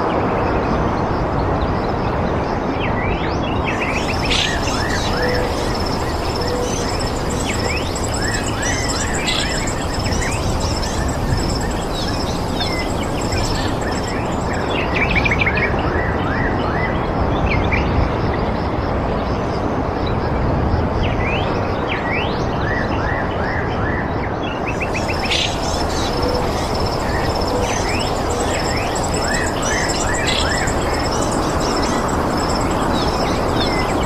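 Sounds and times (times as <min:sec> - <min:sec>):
small birds chirping: 0:03.6 - 0:15.3, 0:24.7 - 0:34.0
steady rushing noise: 0:03.6 - 0:15.6, 0:24.6 - 0:34.0.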